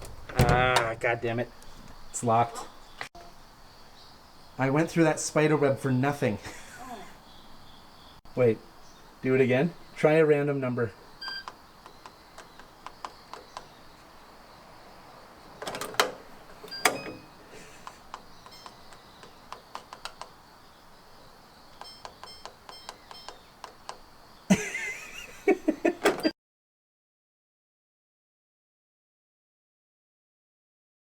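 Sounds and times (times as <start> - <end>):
keypad beeps: 11.2 - 11.6, 16.7 - 17.4, 18.1 - 20.3, 21.7 - 24.0.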